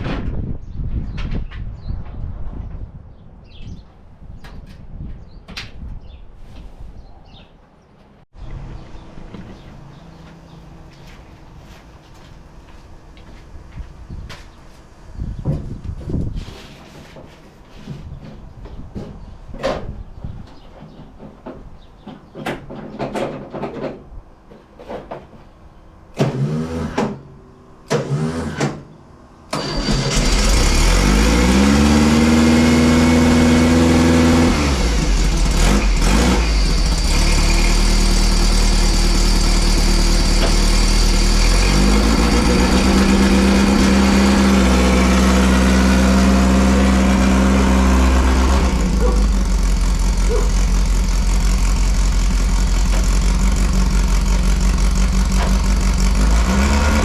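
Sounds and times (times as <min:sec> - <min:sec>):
dune buggy engine revving: 0:29.5 - 0:57.0.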